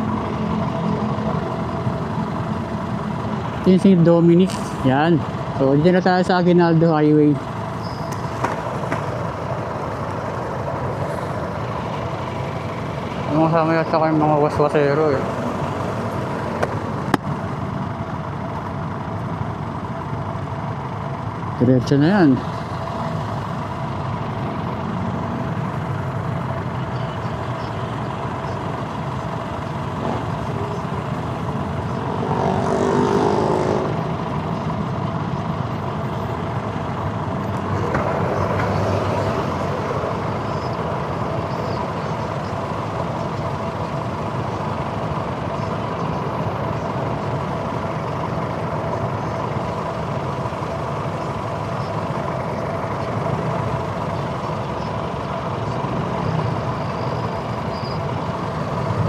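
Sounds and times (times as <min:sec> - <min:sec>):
motorcycle riding: 0:00.0 - 0:59.0
traffic: 0:00.0 - 0:59.0
vehicle passing by: 0:29.9 - 0:35.3, 0:37.3 - 0:41.9.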